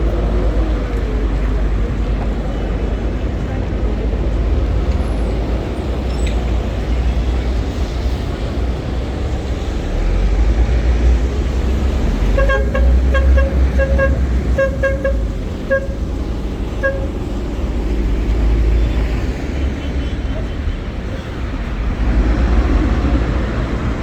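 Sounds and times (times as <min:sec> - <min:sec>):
street traffic rumbling: 0:00.0 - 0:24.0
car horn short beeps: 0:12.3 - 0:17.4.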